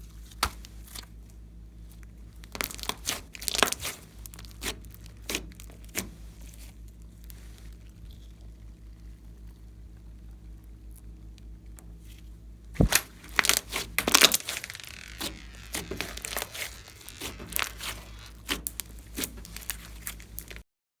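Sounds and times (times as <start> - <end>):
faint low hum: 0.0 - 20.6
slime crackling and popping: 2.0 - 9.6, 12.8 - 20.6.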